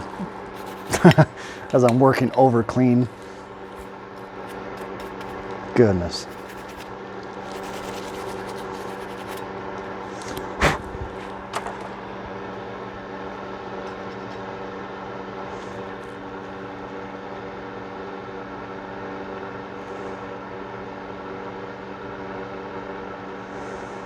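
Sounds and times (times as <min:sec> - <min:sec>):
steady hum: 0:02.7 - 0:14.4
light rapid scraping ticks: 0:06.2 - 0:10.8.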